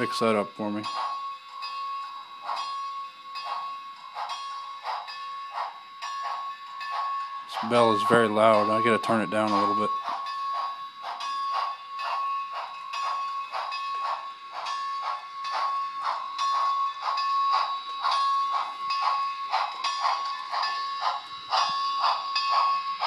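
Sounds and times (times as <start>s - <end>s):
locomotive bell ringing through speaker: 0.0s - 23.0s.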